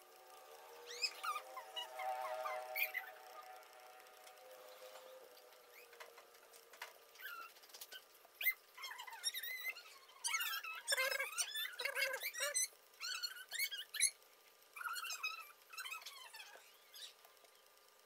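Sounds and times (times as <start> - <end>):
small animal squeaking and chirping: 0.7 - 3.5, 5.7 - 6.0, 7.1 - 17.3.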